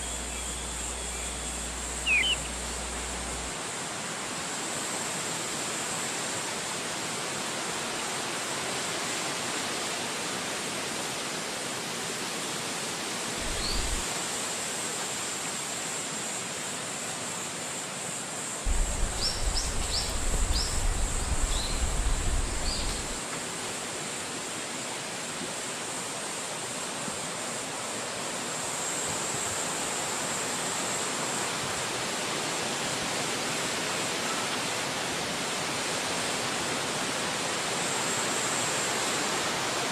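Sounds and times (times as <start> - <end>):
short high chirps: 0.0 - 3.4
wind gusts buffeting microphone: 13.4 - 14.0, 18.7 - 23.2
wind rushing through trees: 13.4 - 14.2, 18.7 - 23.3.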